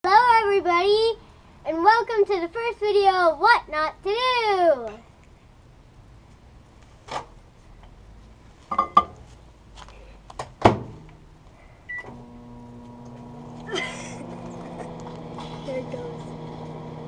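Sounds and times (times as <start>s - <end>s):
microwave oven humming: 11.9s - 17.0s.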